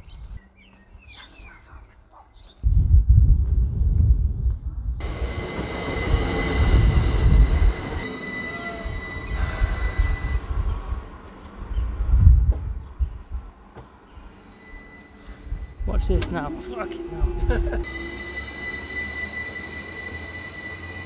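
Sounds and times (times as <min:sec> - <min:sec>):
steady high whine: 0:05.0 - 0:10.6, 0:14.2 - 0:21.0
train wheels rumbling on rails: 0:05.0 - 0:21.0.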